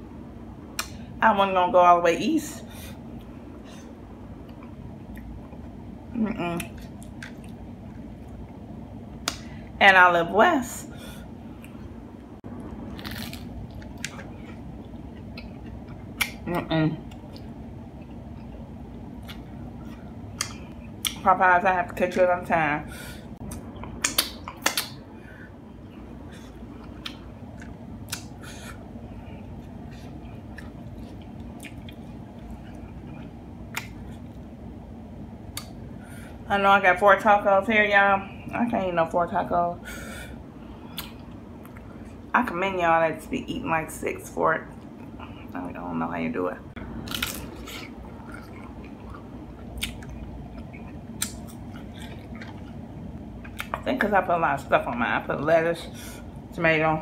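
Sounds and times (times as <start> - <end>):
low steady hum: 0.0 - 57.0
chewing and crunching taco: 12.5 - 21.2, 25.9 - 34.5, 46.8 - 53.8
taco shell crunching: 12.8 - 14.6, 47.0 - 52.8.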